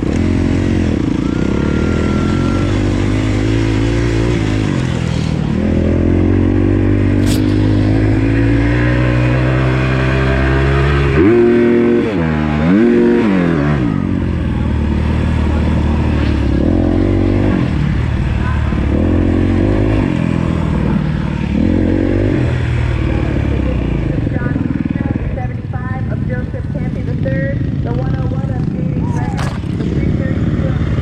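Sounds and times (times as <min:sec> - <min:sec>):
motocross bike engine revving: 0:00.0 - 0:31.0
sharp click: 0:07.2 - 0:07.7.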